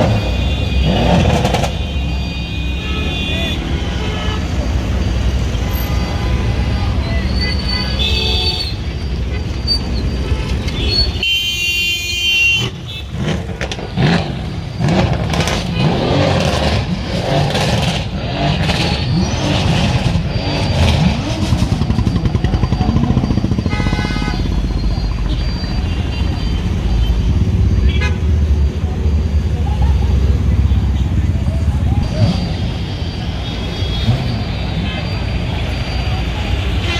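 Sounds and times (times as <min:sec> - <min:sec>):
sports car engines revving: 0:00.0 - 0:01.9, 0:12.6 - 0:25.5, 0:26.7 - 0:36.9
car horn: 0:00.0 - 0:04.8, 0:05.6 - 0:16.7, 0:22.8 - 0:28.4, 0:32.1 - 0:36.9.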